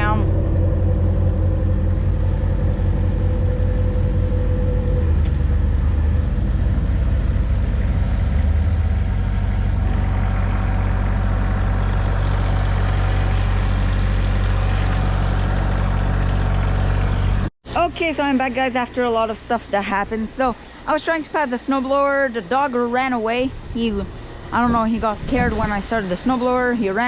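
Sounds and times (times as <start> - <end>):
high-pitched tone: 0.0 - 8.3
pickup truck engine rumbling: 0.0 - 17.5.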